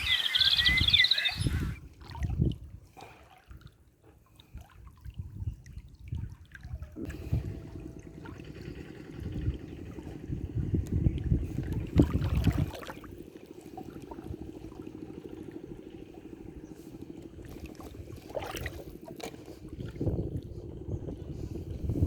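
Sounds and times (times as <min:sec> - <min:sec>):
river water trickling: 0:00.0 - 0:22.0
low rumbling: 0:06.9 - 0:22.0.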